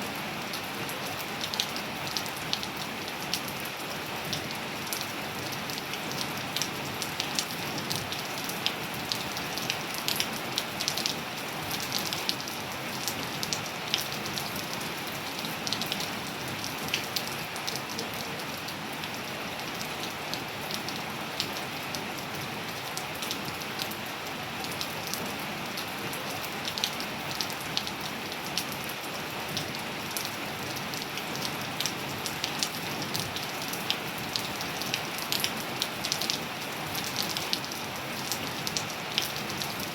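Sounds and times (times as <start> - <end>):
raindrops splashing on surfaces: 0.0 - 39.9
steady rain hiss: 0.0 - 39.9.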